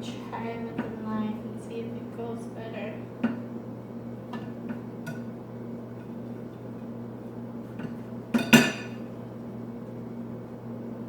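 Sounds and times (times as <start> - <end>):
steady low hum: 0.0 - 11.0
knife tapping and scraping a plate: 7.8 - 9.0.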